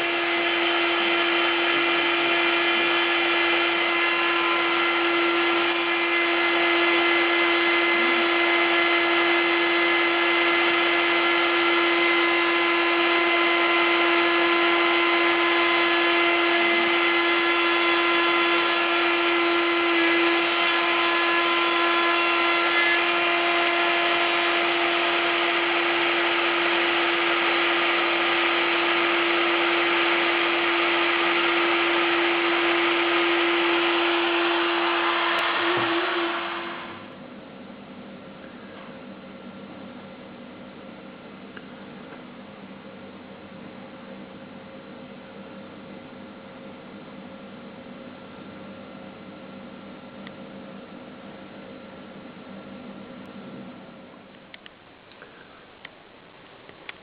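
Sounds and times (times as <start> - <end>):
rushing cutting noise: 0.0 - 37.2
mill spindle whining: 0.0 - 57.0.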